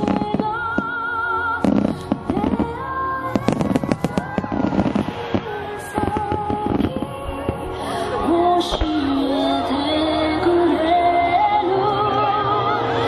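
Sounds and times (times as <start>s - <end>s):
fireworks bursting and crackling: 0.0s - 9.4s
music with held melody: 0.0s - 13.0s.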